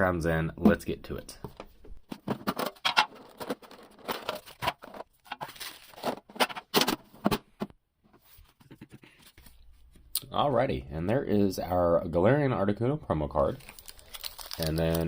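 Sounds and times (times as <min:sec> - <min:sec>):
packaging rustling and crinkling: 0:02.2 - 0:06.6, 0:13.6 - 0:15.0.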